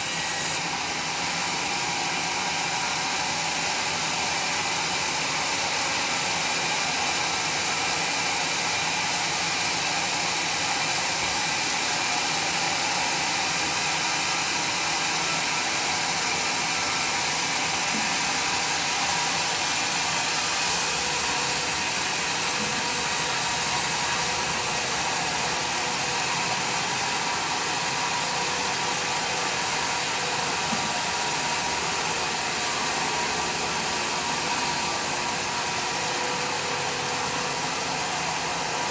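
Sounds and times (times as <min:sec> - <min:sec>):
saw cutting through log: 0:00.0 - 0:01.0, 0:16.1 - 0:38.9.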